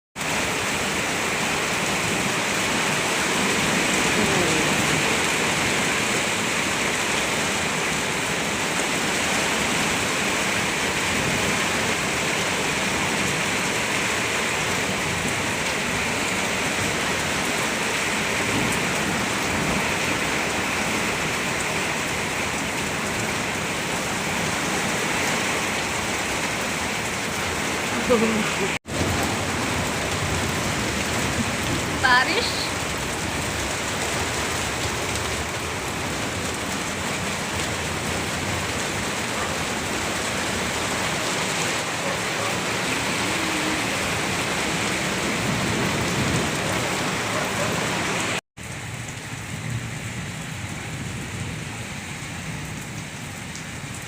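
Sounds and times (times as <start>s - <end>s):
light rain falling: 0.2s - 54.0s.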